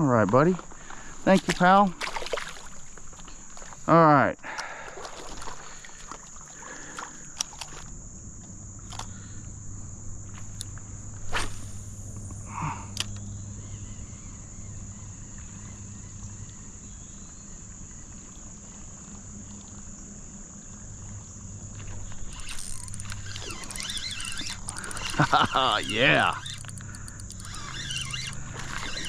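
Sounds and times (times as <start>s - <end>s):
high-pitched insect chorus: 0.0s - 29.0s
water lapping: 1.9s - 3.9s, 4.6s - 7.8s, 21.8s - 29.0s
splashing: 22.2s - 29.0s.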